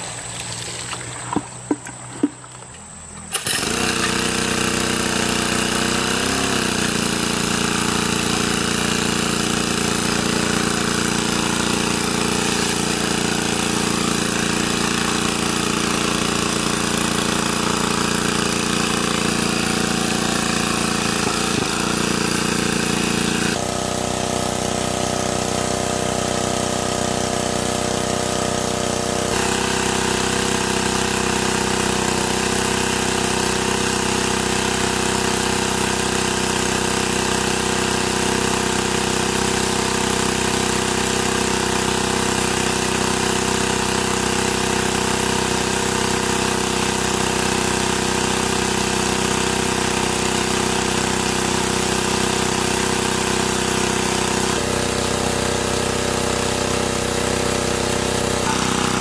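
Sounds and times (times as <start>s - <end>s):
motor droning: 58.2s - 59.0s.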